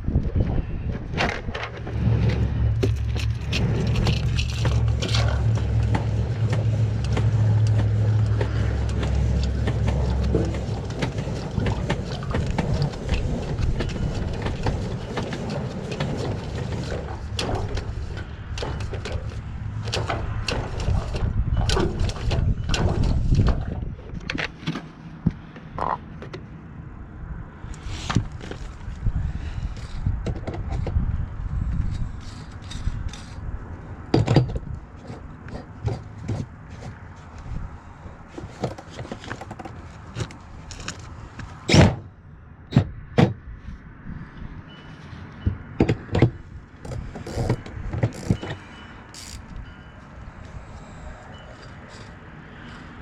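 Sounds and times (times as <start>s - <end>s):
vehicle engine drone: 0.0s - 53.0s
knocks and clicks: 0.9s - 26.5s.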